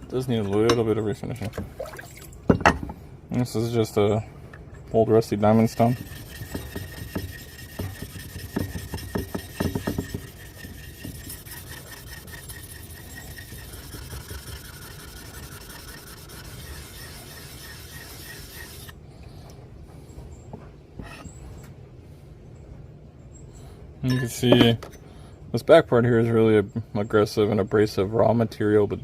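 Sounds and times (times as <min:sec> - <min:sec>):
stone grinding on diamond plate: 0:05.6 - 0:18.9.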